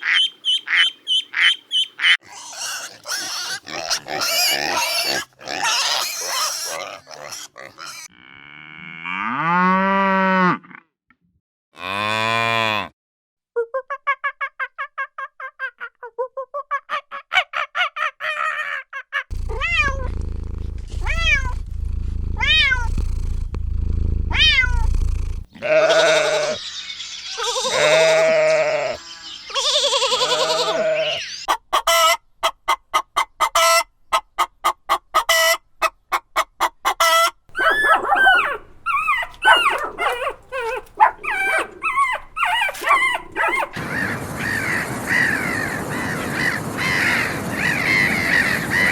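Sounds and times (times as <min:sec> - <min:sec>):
short chirping calls: 0:00.0 - 0:02.2, 0:25.9 - 0:31.5
rising and falling animal calls: 0:19.3 - 0:21.7, 0:24.3 - 0:31.5, 0:37.5 - 0:48.9
fast clicks: 0:19.3 - 0:25.5
low hum: 0:19.3 - 0:25.5
low animal calls: 0:19.3 - 0:31.5.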